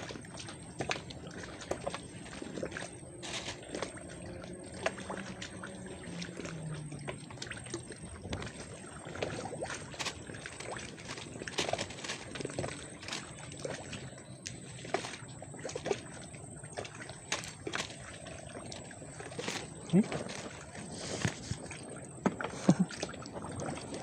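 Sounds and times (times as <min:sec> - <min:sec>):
water sloshing and lapping: 0:00.0 - 0:24.0.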